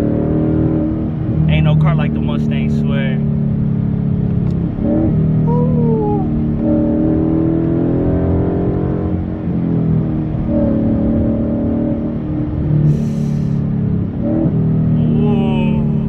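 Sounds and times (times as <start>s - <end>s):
car engine revving through gears: 0.0s - 5.6s, 6.2s - 16.0s.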